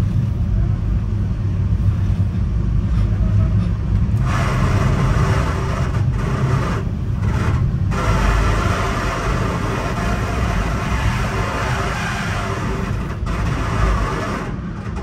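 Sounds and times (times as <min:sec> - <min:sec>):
train rumbling: 0:00.0 - 0:15.0
wheel-on-rail hissing rush: 0:02.8 - 0:14.6.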